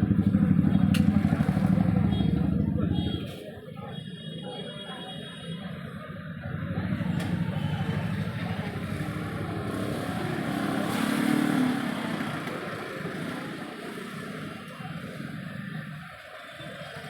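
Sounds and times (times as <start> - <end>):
vehicle engine passing: 6.4 - 15.0.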